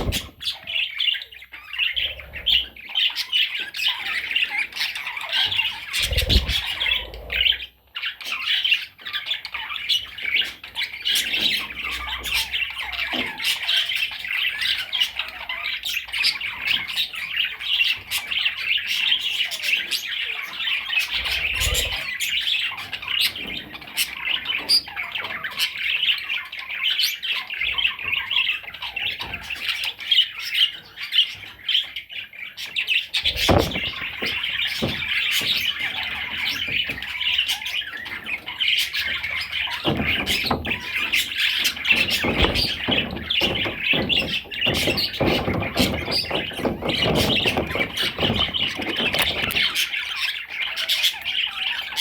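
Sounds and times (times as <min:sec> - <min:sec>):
dull knocks and rustles: 0:00.0 - 0:00.5, 0:33.2 - 0:49.9
budgerigar warbling and chattering: 0:00.0 - 0:31.3.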